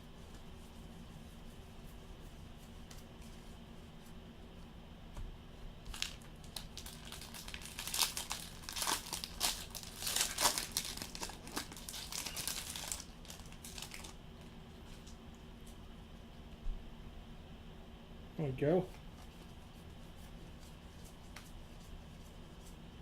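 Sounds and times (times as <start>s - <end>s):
plastic wrapper tearing and crinkling: 5.8s - 14.2s.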